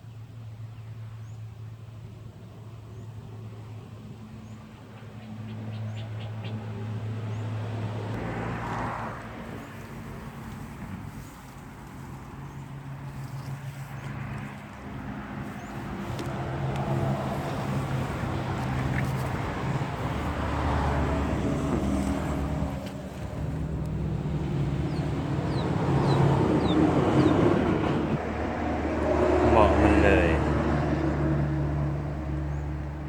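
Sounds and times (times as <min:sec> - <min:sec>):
vehicle engine running: 0:09.4 - 0:30.4.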